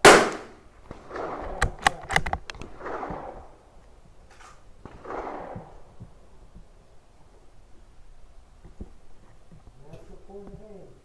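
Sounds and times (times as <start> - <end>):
rifle bolt metallic clicks: 1.4 - 2.8.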